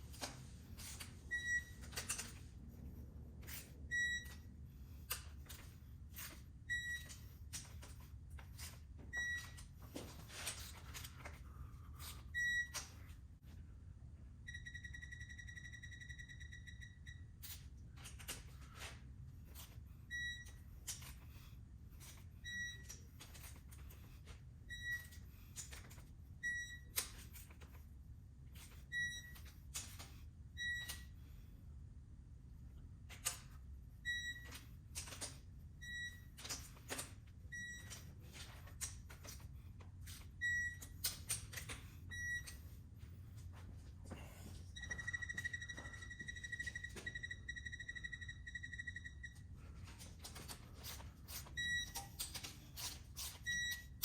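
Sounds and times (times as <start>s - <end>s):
steady beep: 14.4s - 17.3s, 44.7s - 49.5s
short electronic beeps: 14.5s - 17.4s, 44.7s - 49.5s, 51.6s - 52.2s, 53.4s - 54.0s.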